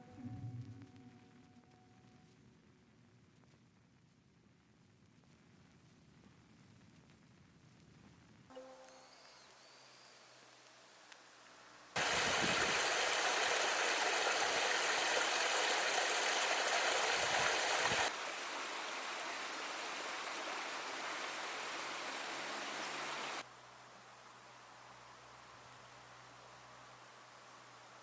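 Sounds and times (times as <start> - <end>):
waterfall rushing: 12.0 - 18.1.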